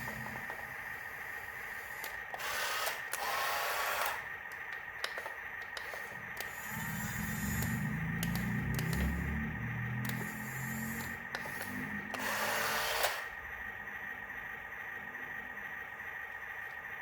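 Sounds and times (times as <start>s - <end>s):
small electric motors whirring: 1.5s - 13.4s.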